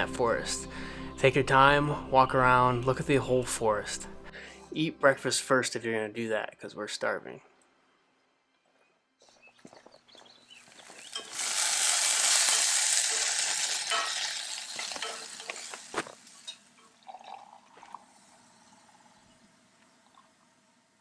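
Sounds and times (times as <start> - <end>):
food sizzling in frying pan: 10.5 - 16.9.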